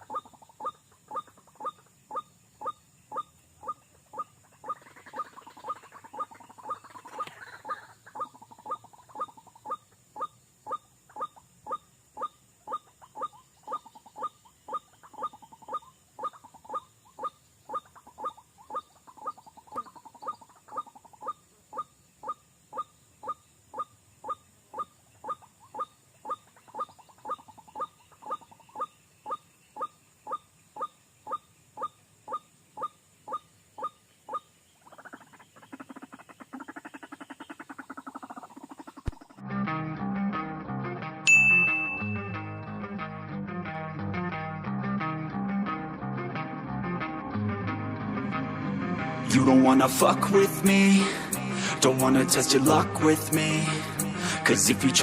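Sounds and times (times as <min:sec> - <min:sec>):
waterhen calling: 0:00.0 - 0:39.4.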